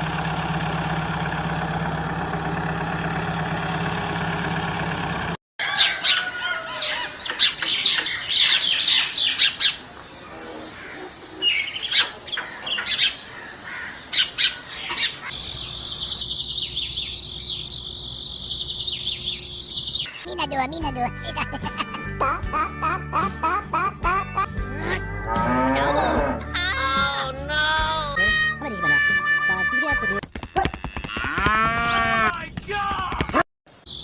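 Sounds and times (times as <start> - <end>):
motor hum: 0.0 - 5.4, 12.4 - 20.2
birds chirping: 5.6 - 20.3, 22.5 - 26.3.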